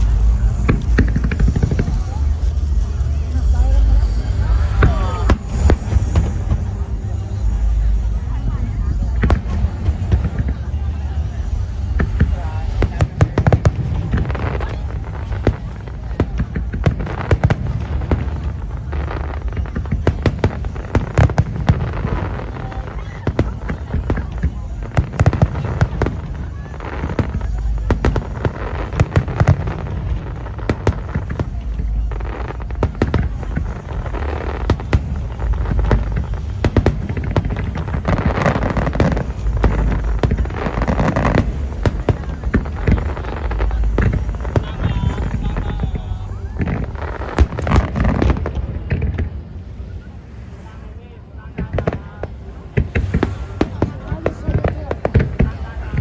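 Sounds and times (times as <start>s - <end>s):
low rumble: 0.0s - 50.4s
fireworks bangs and crackles: 0.0s - 56.0s.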